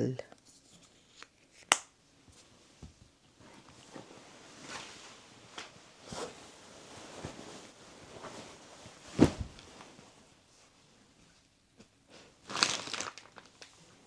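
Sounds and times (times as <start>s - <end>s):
soft rustling and handling: 0.2s - 14.0s.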